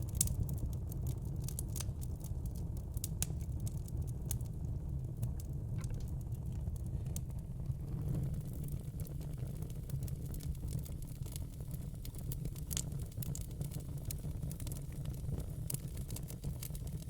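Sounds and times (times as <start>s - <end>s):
fire popping: 0.0s - 17.0s
wood fire crackling: 0.0s - 17.0s
low steady rumble: 3.4s - 11.0s.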